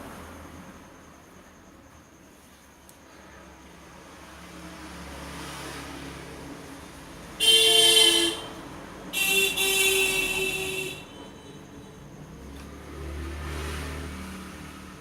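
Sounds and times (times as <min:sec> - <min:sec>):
faint passing traffic: 0:00.0 - 0:15.0
vehicle horn honks: 0:07.4 - 0:11.7.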